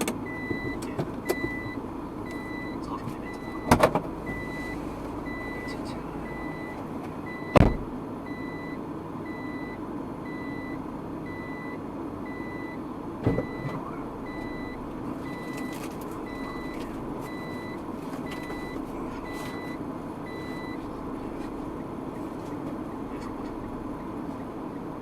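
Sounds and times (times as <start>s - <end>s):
vehicle road rumble: 0.0s - 25.0s
electronic warning beeps: 0.2s - 20.9s
loud thump: 7.5s - 7.9s, 13.2s - 13.8s.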